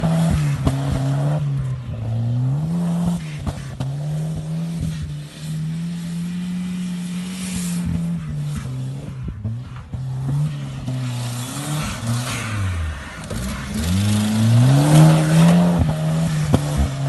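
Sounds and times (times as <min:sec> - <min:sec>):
car engine revving hard: 0:00.0 - 0:17.0
tyre noise hiss: 0:04.5 - 0:09.2.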